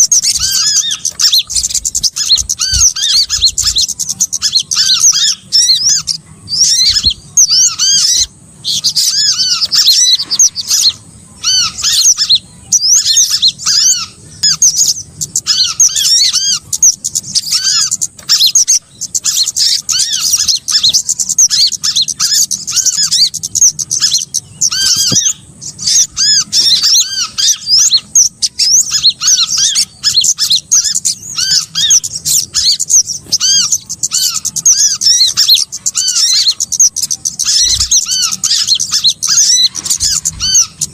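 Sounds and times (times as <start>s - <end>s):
small songbirds chirping: 0.0s - 40.9s.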